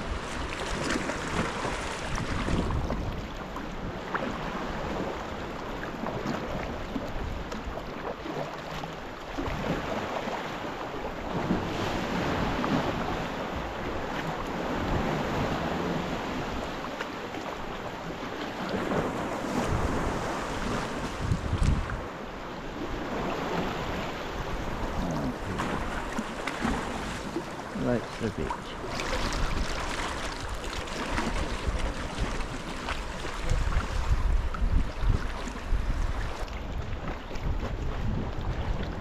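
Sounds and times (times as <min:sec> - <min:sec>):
wind buffeting microphone: 0:00.0 - 0:03.3, 0:18.8 - 0:22.1, 0:22.8 - 0:39.0
water splashing around kayak: 0:00.0 - 0:39.0.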